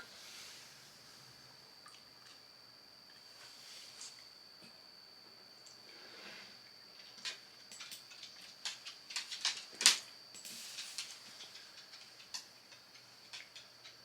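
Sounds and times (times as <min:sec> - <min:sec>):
faint high whine: 0:00.0 - 0:14.0
light clicks and taps: 0:07.0 - 0:14.0.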